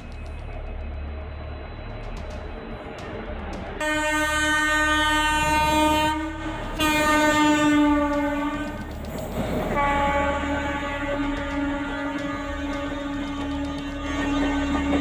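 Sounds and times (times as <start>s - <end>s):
train horn blasts: 3.8s - 8.9s, 9.6s - 15.0s.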